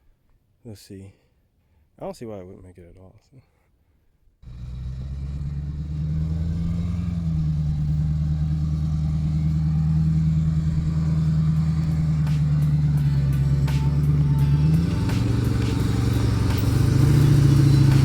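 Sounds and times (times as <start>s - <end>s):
off-road vehicle engine drone: 4.4s - 18.0s.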